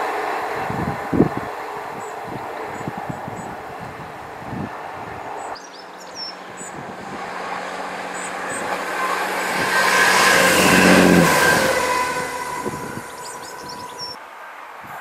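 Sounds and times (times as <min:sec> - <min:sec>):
train engine hum: 0:00.0 - 0:14.2
train wheel noise: 0:00.0 - 0:14.2
faint birdsong: 0:05.4 - 0:06.9, 0:11.8 - 0:14.2.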